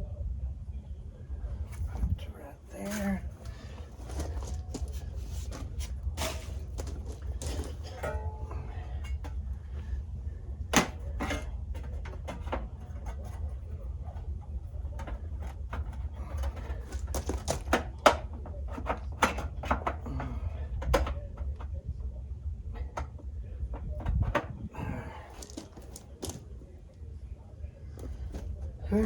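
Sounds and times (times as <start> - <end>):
low steady rumble: 0.0 - 17.5
hard objects clicking and knocking: 2.9 - 22.0, 22.7 - 26.7.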